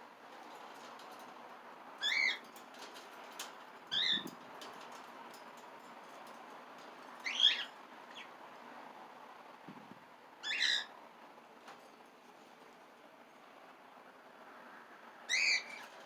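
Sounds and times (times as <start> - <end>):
cockatiel calls: 7.2 - 8.3, 10.4 - 10.9, 15.3 - 15.8.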